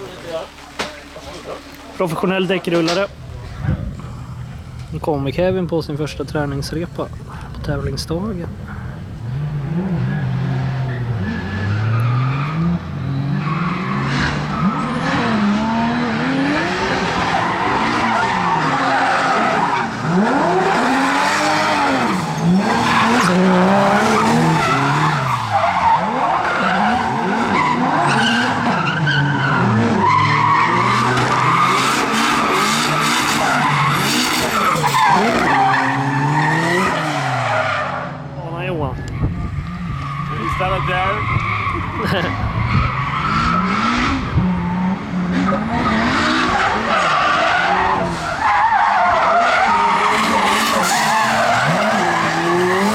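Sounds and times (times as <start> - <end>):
car engine revving: 0.0 - 52.9
tyres screeching: 5.8 - 38.0, 38.6 - 52.9.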